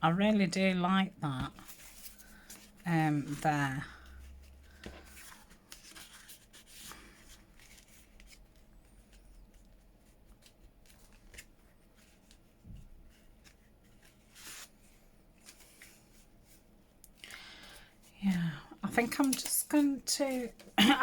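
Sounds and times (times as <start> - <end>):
paper rustling: 1.4 - 16.6.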